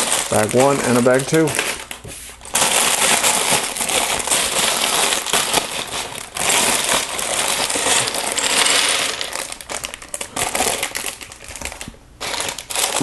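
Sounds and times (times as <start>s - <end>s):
plastic bag crinkling: 0.0s - 13.0s
small plastic bricks rattling: 2.6s - 13.0s.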